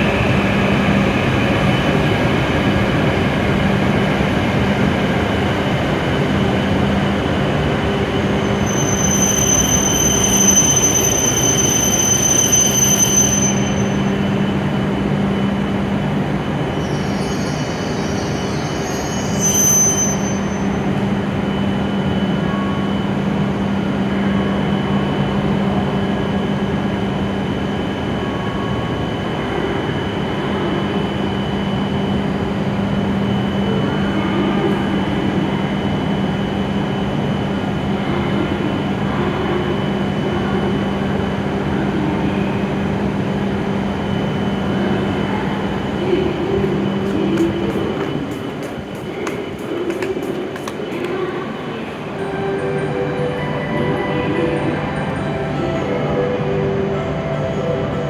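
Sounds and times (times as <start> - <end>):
train running with low hum: 0.0 - 58.0
high-pitched train squeal: 8.2 - 14.4, 16.7 - 23.0.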